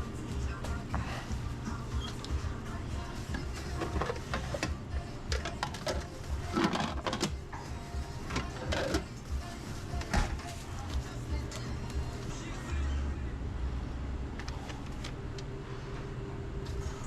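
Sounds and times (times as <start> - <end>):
background music with low beat: 0.0 - 14.4
utensils and dishes clattering: 3.3 - 9.2.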